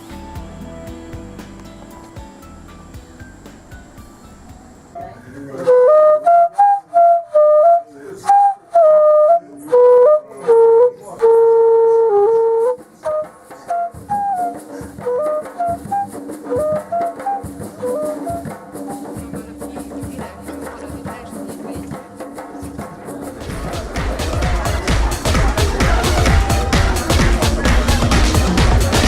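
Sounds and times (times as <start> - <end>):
background music: 0.0 - 6.4, 12.6 - 29.0.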